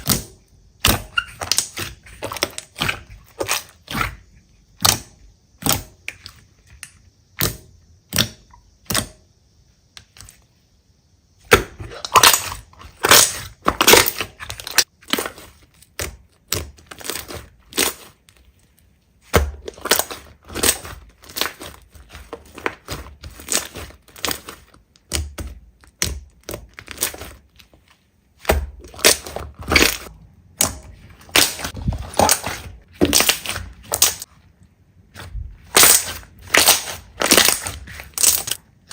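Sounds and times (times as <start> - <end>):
slime crackling and popping: 12.0 - 18.2, 19.3 - 27.5, 28.4 - 34.3, 35.2 - 38.9.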